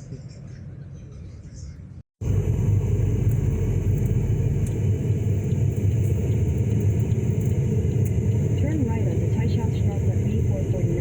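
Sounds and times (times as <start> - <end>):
car engine and road rumble: 2.2 - 11.0.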